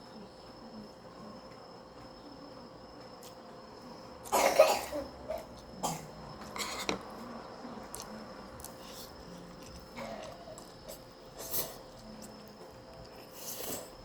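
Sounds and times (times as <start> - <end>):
person coughing: 4.3 - 6.9.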